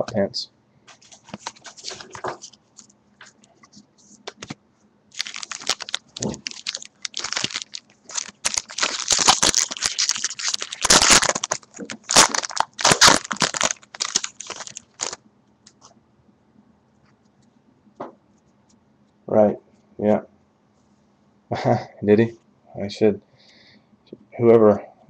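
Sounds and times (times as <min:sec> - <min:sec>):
plastic wrapping crinkling: 0:00.9 - 0:15.2.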